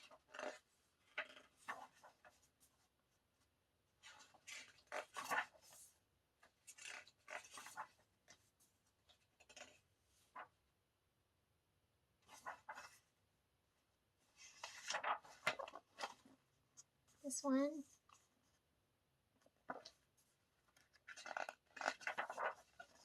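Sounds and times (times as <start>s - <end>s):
paper and card rustling: 0.0s - 2.8s, 4.0s - 10.5s, 12.2s - 13.1s, 14.3s - 16.4s, 19.4s - 23.0s.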